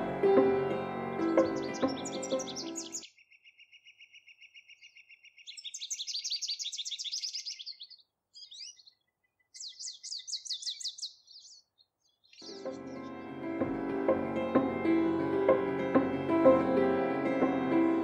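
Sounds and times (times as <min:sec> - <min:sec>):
bird trills: 0:01.4 - 0:13.1.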